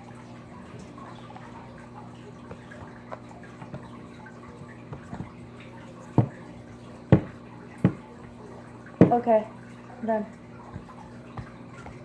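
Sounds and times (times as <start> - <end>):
sharp knocks: 7.1 - 8.0.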